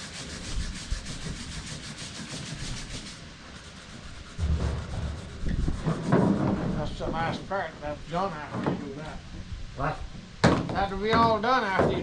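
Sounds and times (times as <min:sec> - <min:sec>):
hand sanding strokes: 0:00.0 - 0:06.8
dull low knocks: 0:04.4 - 0:07.2.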